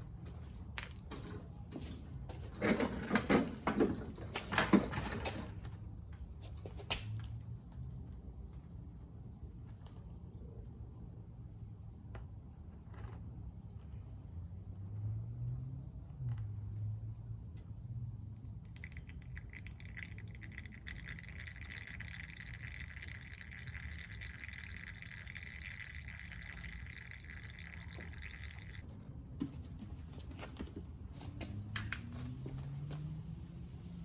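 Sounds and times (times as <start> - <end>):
motor oil pouring: 18.5 - 29.1.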